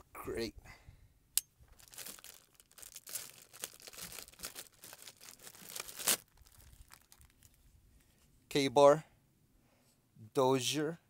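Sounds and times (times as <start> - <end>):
packaging crinkling and rustling: 1.6 - 7.6.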